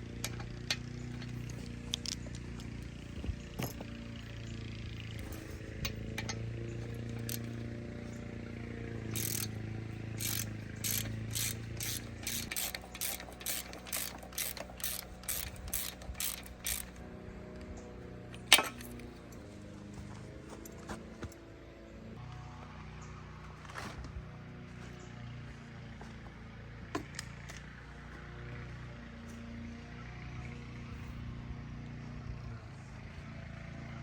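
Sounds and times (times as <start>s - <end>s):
ratchet wrench clicking: 0.2s - 2.4s, 7.0s - 7.6s, 9.0s - 17.0s, 18.4s - 19.0s.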